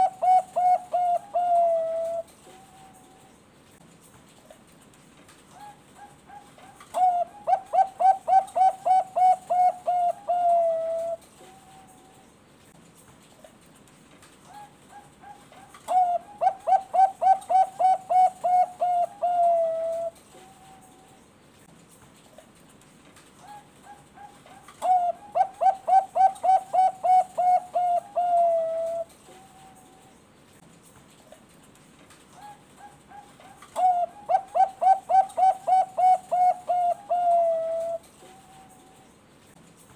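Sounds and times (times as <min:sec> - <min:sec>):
dove cooing: 0:00.0 - 0:03.3, 0:05.5 - 0:12.0, 0:14.5 - 0:21.1, 0:23.4 - 0:30.1, 0:32.4 - 0:39.1.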